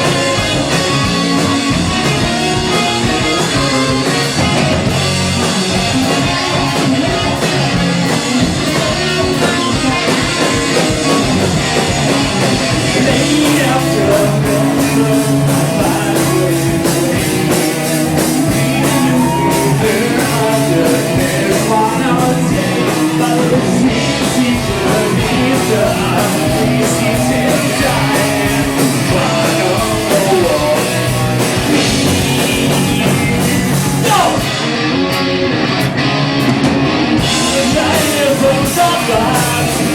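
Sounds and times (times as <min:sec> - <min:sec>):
rock band playing live: 0:00.0 - 0:39.9
person singing: 0:12.8 - 0:34.5, 0:37.4 - 0:39.9.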